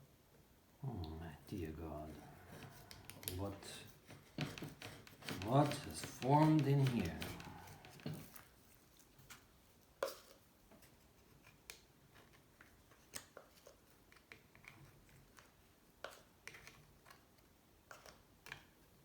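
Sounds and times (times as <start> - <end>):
hand tool scraping metal: 2.1 - 8.2.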